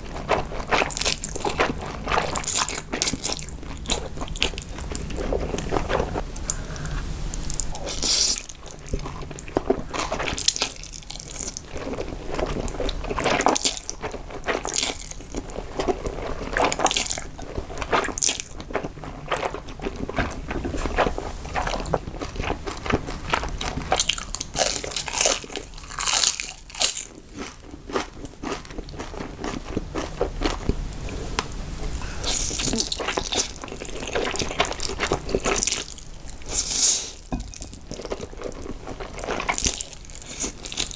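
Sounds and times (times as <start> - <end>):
person crunching and chewing food: 0.0 - 40.9.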